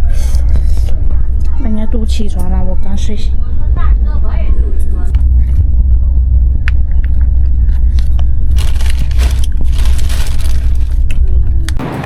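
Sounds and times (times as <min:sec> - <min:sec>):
train carriage rumble: 0:00.0 - 0:12.0.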